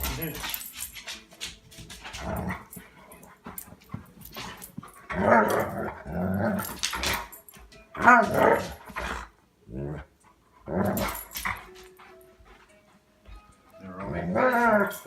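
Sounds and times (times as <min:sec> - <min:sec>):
dog growling: 0:05.1 - 0:07.2, 0:08.1 - 0:11.3.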